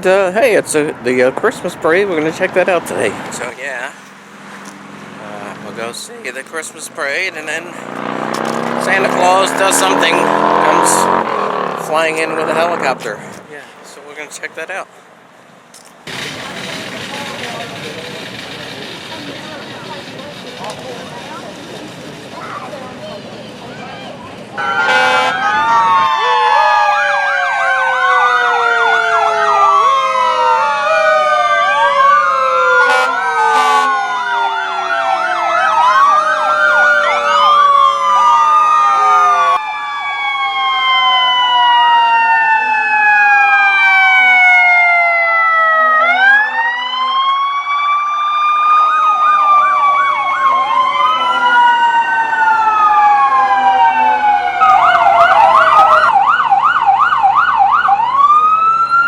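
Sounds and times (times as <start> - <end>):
electronic siren wails and yelps: 8.0 - 13.1, 24.6 - 59.0.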